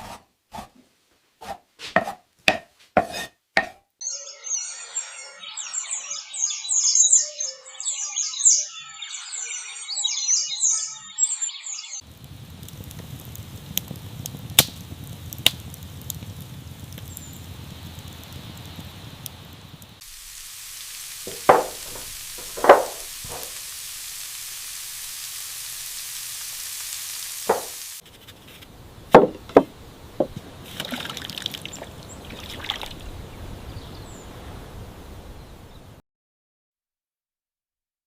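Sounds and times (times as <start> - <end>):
faint high chirps: 4.0 - 12.0
steady hiss: 12.0 - 35.8
sharp knocks: 21.3 - 23.5, 27.5 - 27.8, 29.2 - 30.4.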